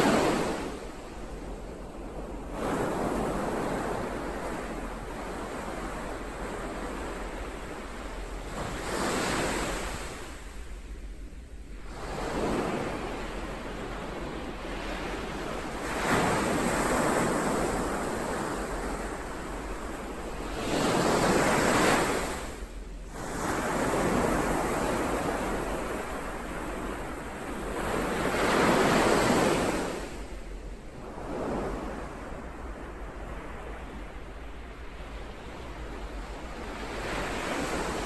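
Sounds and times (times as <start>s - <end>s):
ocean waves breaking: 11.8s - 38.0s.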